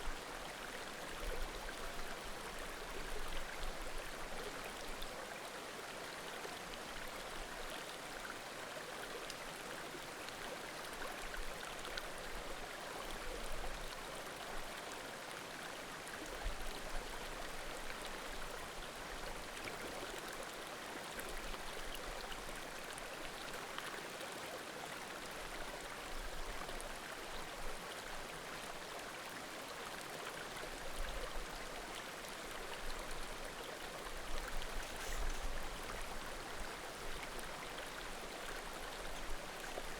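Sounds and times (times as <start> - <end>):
creek babbling: 29.9 - 39.9.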